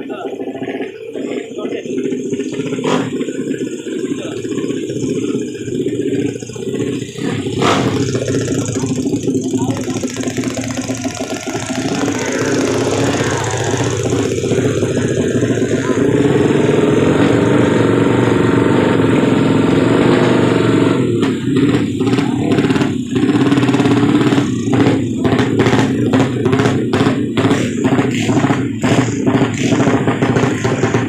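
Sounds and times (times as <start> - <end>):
motorcycle engine running and blipped: 0.0 - 31.0.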